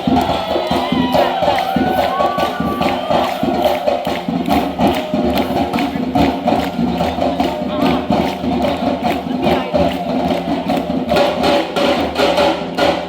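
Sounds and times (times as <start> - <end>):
samba drums and percussion: 0.0 - 13.0.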